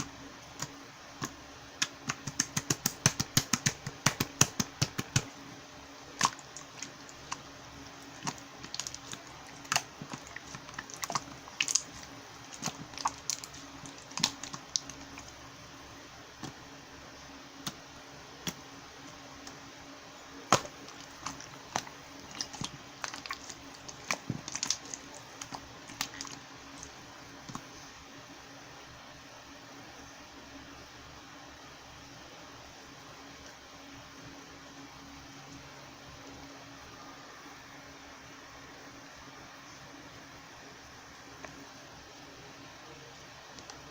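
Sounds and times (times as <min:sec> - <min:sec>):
slime clicking and popping: 0:00.5 - 0:05.3, 0:06.2 - 0:07.5, 0:08.1 - 0:15.3, 0:20.5 - 0:26.9.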